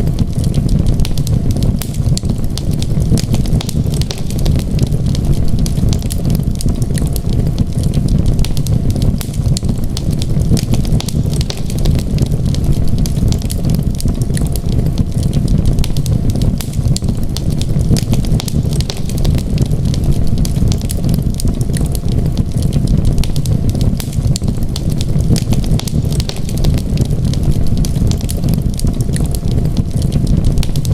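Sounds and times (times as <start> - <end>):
wood fire crackling and popping: 0.0 - 30.9.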